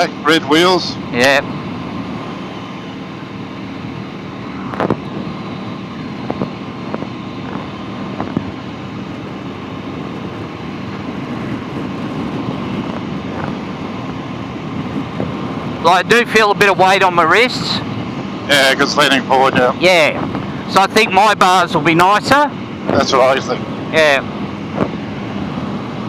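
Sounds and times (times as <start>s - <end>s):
motorcycle engine cruising: 0.0s - 26.0s
wind noise on microphone: 4.5s - 5.4s, 6.2s - 15.9s, 20.1s - 20.7s, 24.4s - 26.0s.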